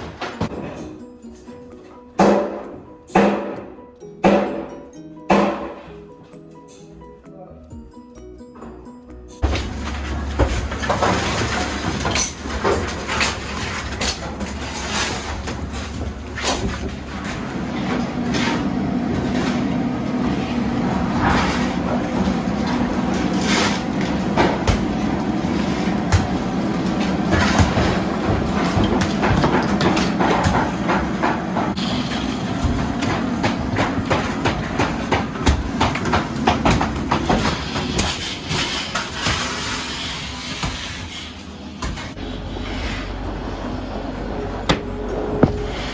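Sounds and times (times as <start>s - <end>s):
debris knocking and clattering: 9.4s - 38.2s
heavy machine engine rumbling: 9.4s - 45.9s.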